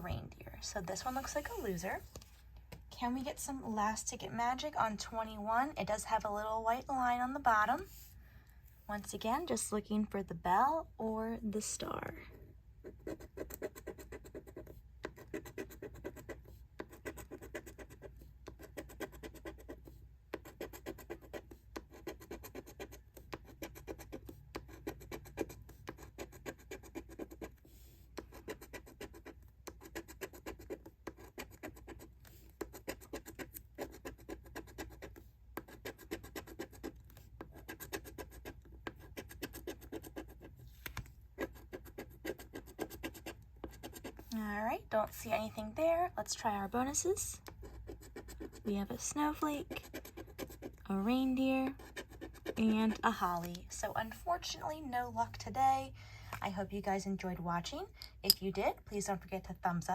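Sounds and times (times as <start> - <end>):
scratching a lottery ticket: 12.8 - 54.6.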